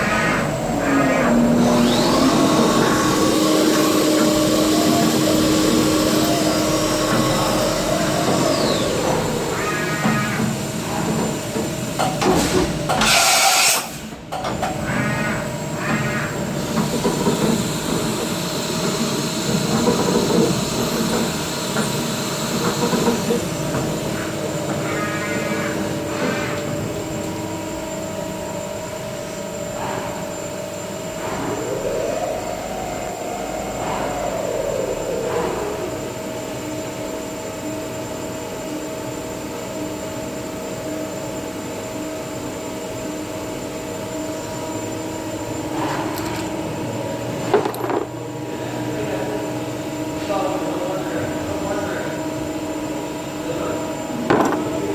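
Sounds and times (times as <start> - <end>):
squealing cutting pulses: 0.0 - 10.6, 24.0 - 27.0, 30.4 - 36.8
milling machine whine: 0.0 - 54.9.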